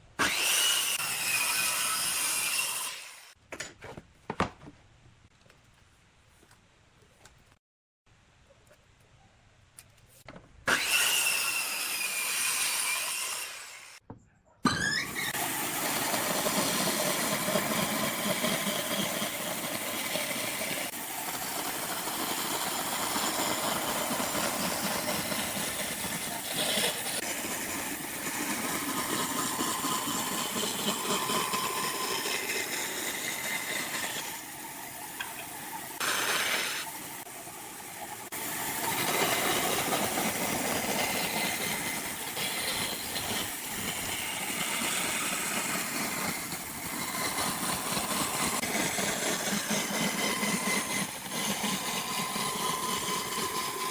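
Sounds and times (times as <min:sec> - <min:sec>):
woodworking machinery whining: 0:00.2 - 0:03.3, 0:10.7 - 0:14.0, 0:14.6 - 0:53.9.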